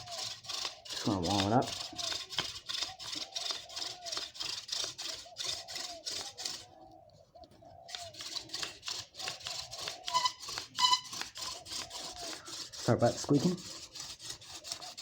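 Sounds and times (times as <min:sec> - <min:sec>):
hand drill rubbing on wood: 0:00.0 - 0:06.8, 0:07.8 - 0:15.0
spindle squeaking: 0:09.2 - 0:13.7.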